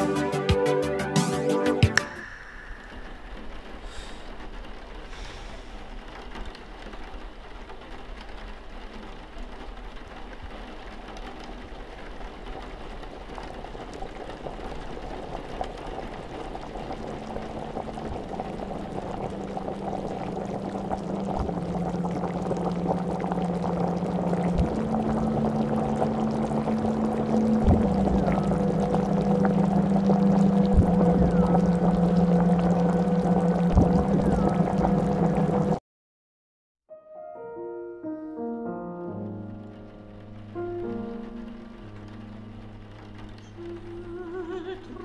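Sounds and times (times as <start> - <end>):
water hissing and bubbling in saucepan: 13.0 - 35.8
low held shifting tones: 17.1 - 35.8.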